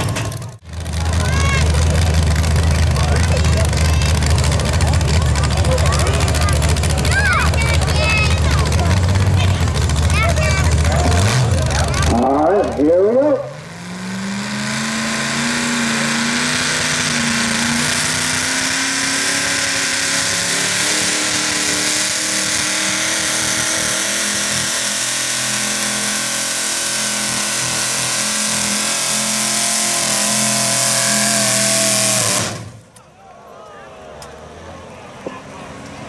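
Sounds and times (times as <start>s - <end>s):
truck engine running under load: 0.0s - 33.0s.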